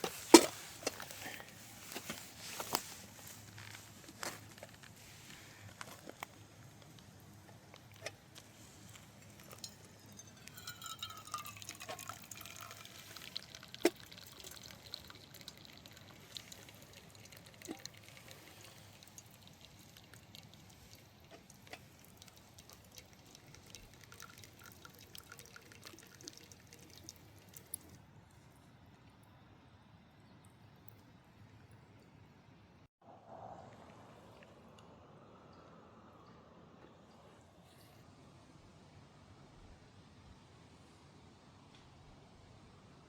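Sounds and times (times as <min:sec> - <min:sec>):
liquid pouring and dripping: 0:06.4 - 0:28.1.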